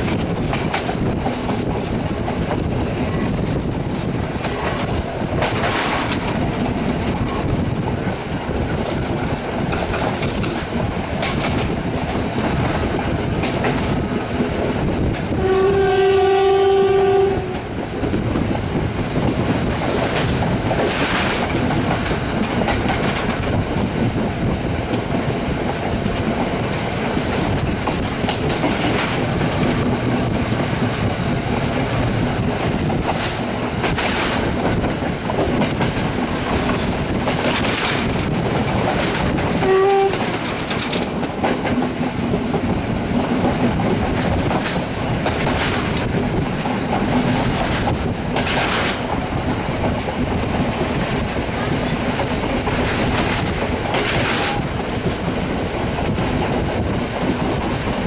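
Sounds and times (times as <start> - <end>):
wheels clacking over rail joints: 0.0 - 15.6, 17.5 - 58.0
train rolling rumble: 0.0 - 58.0
train horn: 15.3 - 17.7, 39.6 - 40.4.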